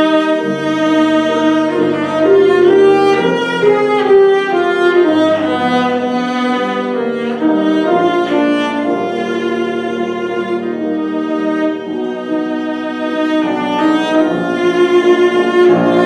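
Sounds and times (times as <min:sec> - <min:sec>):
bowed string melody: 0:00.0 - 0:16.0
piano accompaniment: 0:00.0 - 0:16.0.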